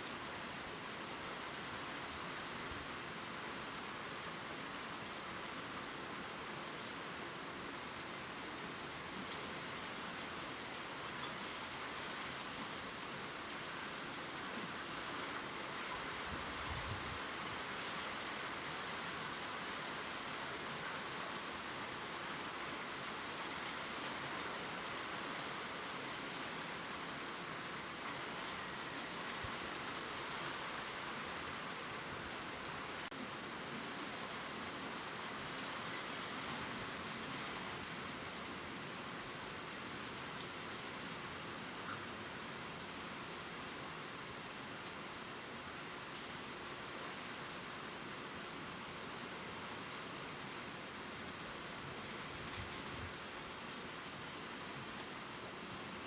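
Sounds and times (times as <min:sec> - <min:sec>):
rain falling on leaves: 0:00.0 - 0:56.0
faint raindrop ticks: 0:05.5 - 0:05.8.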